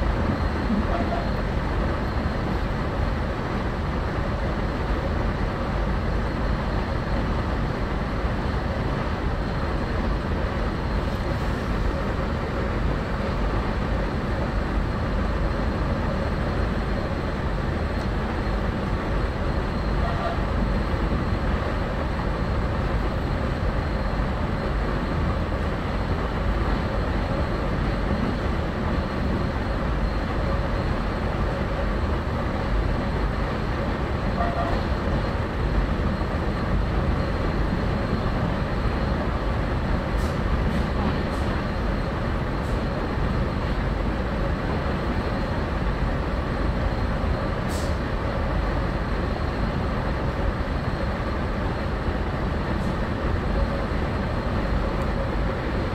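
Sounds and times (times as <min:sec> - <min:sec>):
train wheels rumbling on track: 0:00.0 - 0:55.9.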